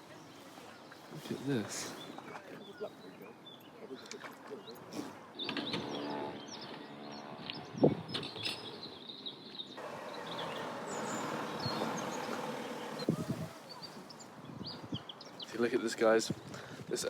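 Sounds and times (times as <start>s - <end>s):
birds chirping: 0.0s - 16.6s
outdoor background hiss: 8.2s - 17.0s.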